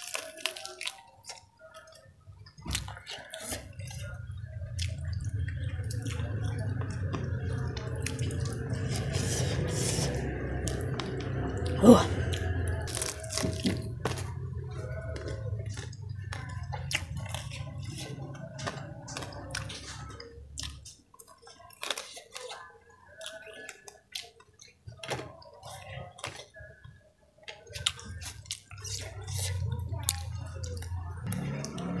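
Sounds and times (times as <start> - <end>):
crunchy chewing: 0.0 - 32.0.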